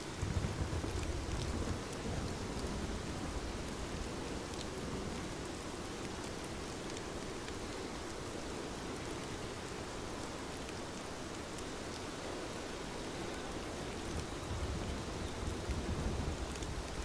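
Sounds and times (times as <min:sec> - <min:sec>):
steady rain hiss: 0:00.0 - 0:17.0
raindrop ticks: 0:00.3 - 0:03.0, 0:04.4 - 0:05.3, 0:14.0 - 0:17.0.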